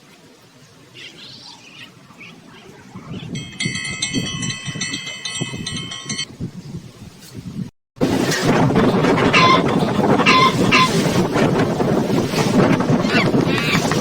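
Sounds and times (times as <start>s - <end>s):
gusty wind rumble on microphone: 2.7s - 14.0s
metal wind chimes ringing: 3.3s - 6.4s.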